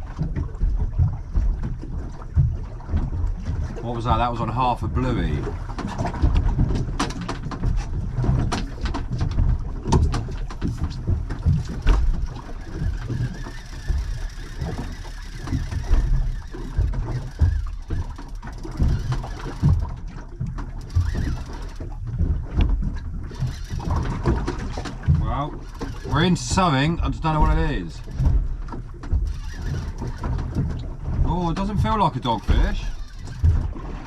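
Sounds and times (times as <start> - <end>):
low rumble of wind and water: 0.0 - 34.0.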